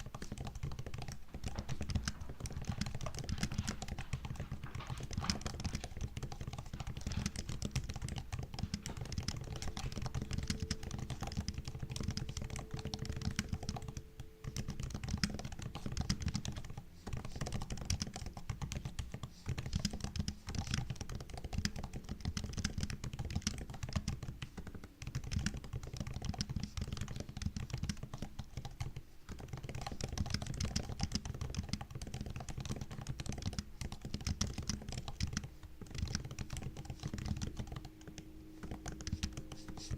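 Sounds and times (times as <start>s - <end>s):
fast typing on laptop keyboard: 0.0s - 39.9s.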